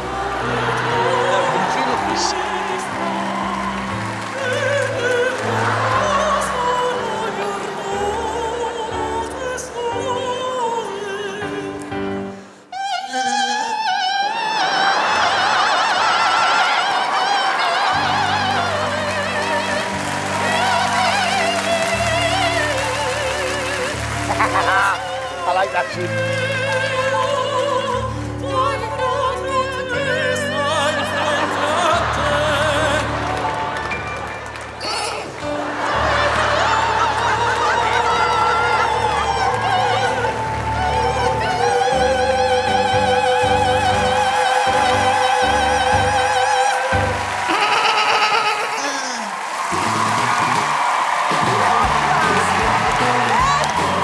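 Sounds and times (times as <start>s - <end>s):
orchestral backing track: 0.0s - 4.3s
backing music: 0.0s - 12.5s, 17.0s - 48.5s, 49.6s - 54.0s
operatic singing: 0.0s - 54.0s.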